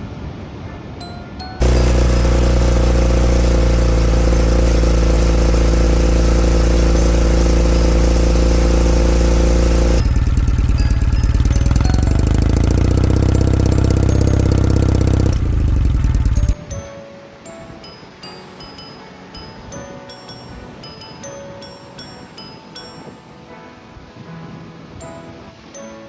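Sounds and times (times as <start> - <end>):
motorcycle engine exhaust note: 1.6 - 16.9.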